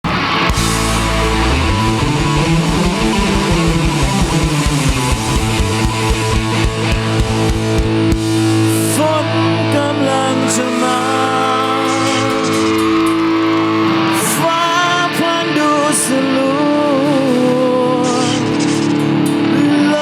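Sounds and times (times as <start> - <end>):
bass guitar: 0.0 - 20.0
electric guitars: 0.0 - 20.0
drum beat: 0.5 - 8.7, 10.8 - 14.2.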